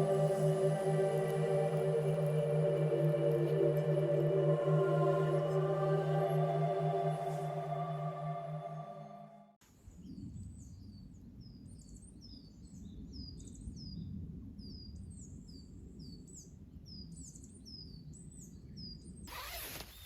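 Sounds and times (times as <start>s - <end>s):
songbirds chirping: 0.0s - 9.2s
low steady rush: 0.0s - 9.4s.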